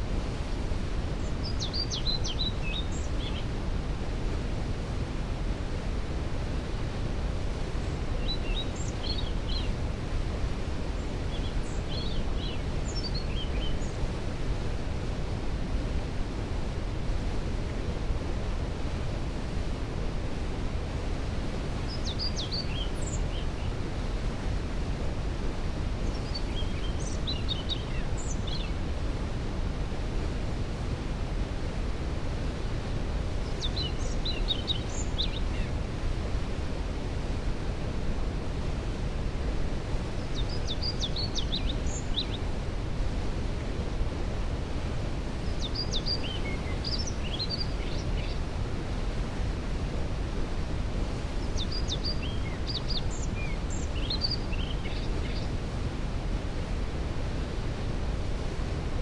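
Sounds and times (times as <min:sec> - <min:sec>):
songbird singing: 0:01.2 - 0:03.6, 0:07.8 - 0:09.8, 0:11.0 - 0:14.0, 0:21.8 - 0:23.8, 0:26.0 - 0:28.8, 0:33.4 - 0:35.8, 0:40.1 - 0:42.4, 0:45.4 - 0:48.4, 0:51.3 - 0:55.6.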